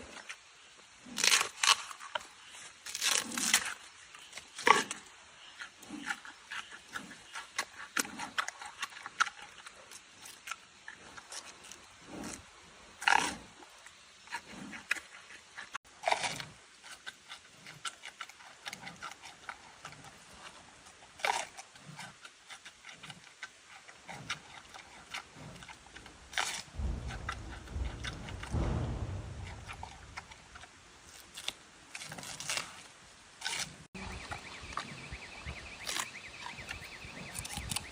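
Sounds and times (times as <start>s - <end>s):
animal chewing bamboo crunches: 1.0s - 35.0s, 35.7s - 37.9s
low rumble: 25.8s - 30.9s.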